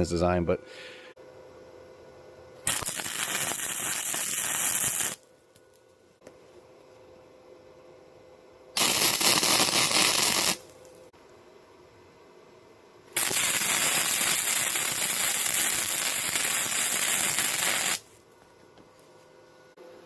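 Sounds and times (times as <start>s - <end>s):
crackling wire-feed welding: 2.6s - 5.9s, 8.8s - 11.1s, 13.2s - 18.3s.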